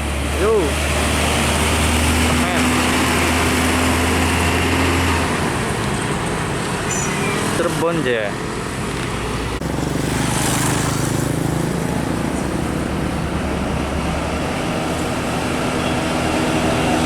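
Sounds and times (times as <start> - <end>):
diesel truck engine running: 0.0 - 17.0
tyre and road traffic noise: 0.0 - 17.0.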